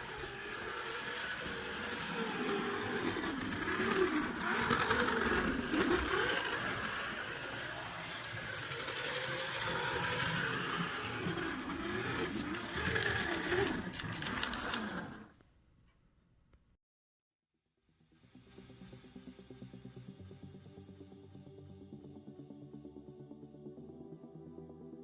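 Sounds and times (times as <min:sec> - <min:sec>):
slot car motor whine: 0:00.0 - 0:15.3
sharp clicks: 0:11.6 - 0:15.5.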